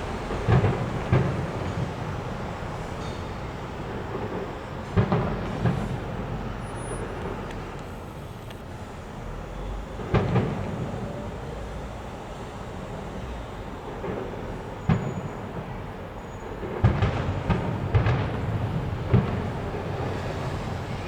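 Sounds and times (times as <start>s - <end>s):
fireworks bangs: 0.0s - 7.8s, 9.9s - 11.4s, 13.8s - 21.0s.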